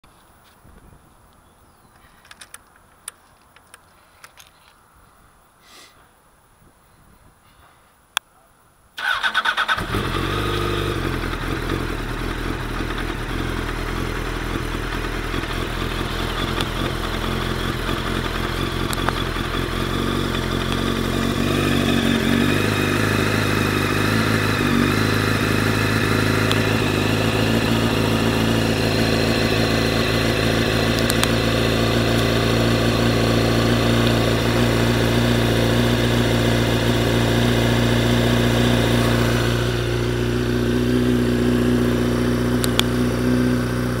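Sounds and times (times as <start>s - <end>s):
motorcycle engine idling: 9.0s - 44.0s.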